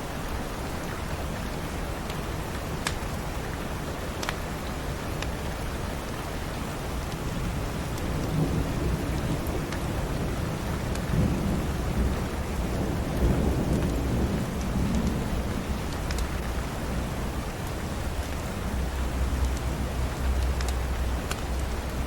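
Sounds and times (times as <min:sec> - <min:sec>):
steady rain falling: 0:00.0 - 0:22.0
low rumble of thunder: 0:07.3 - 0:20.4.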